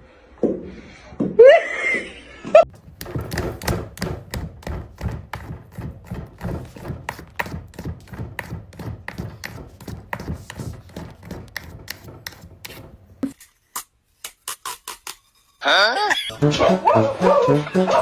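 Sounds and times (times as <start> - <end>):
rapid thumps and taps: 2.7 - 13.1.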